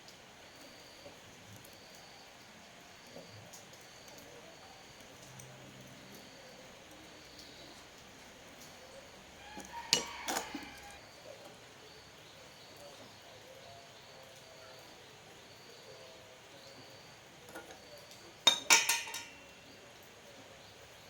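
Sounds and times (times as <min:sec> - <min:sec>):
hard objects clinking and ringing: 0:09.6 - 0:11.0, 0:18.5 - 0:19.6.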